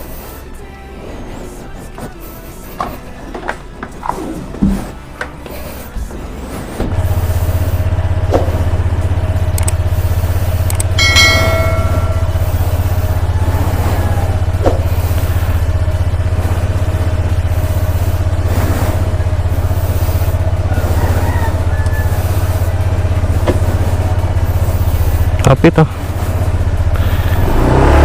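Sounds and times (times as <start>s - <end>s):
scooter engine idling: 0.0s - 28.0s
metallic clink: 10.8s - 12.9s.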